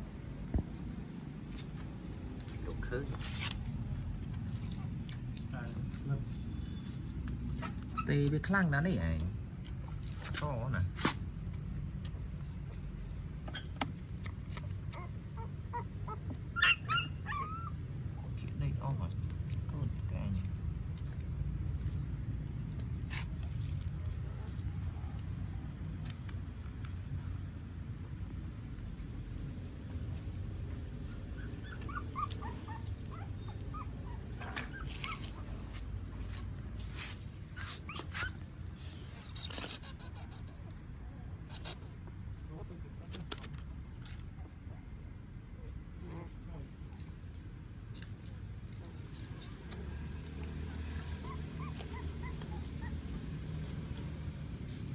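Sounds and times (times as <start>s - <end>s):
puppies whimpering and squealing: 7.5s - 8.1s, 14.9s - 18.4s, 30.7s - 42.0s, 48.7s - 54.9s.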